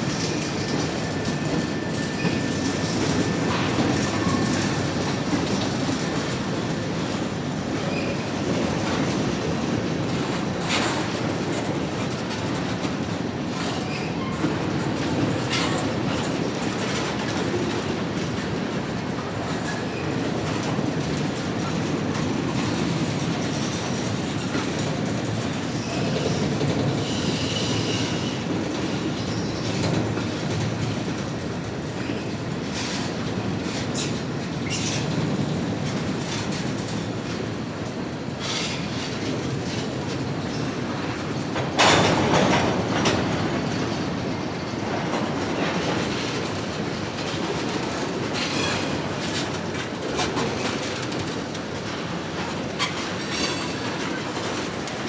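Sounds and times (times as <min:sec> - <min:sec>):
freight train rumble: 0:00.0 - 0:55.0
wheels clacking over rail joints: 0:00.0 - 0:55.0
high wheel squeals: 0:25.7 - 0:28.5, 0:52.8 - 0:54.9.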